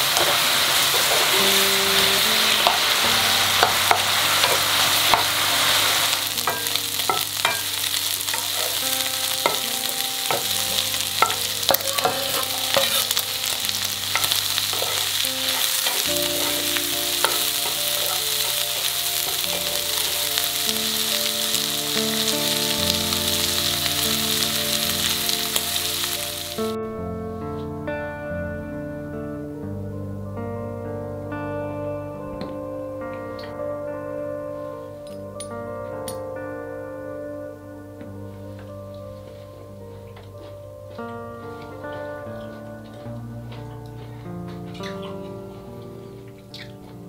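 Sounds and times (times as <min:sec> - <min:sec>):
food sizzling in a frying pan: 0:00.0 - 0:26.8.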